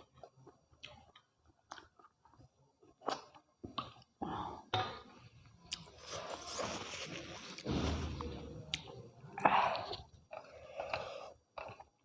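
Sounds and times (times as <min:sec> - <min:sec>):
person chewing close to microphone: 0:00.0 - 0:04.2, 0:08.7 - 0:12.0.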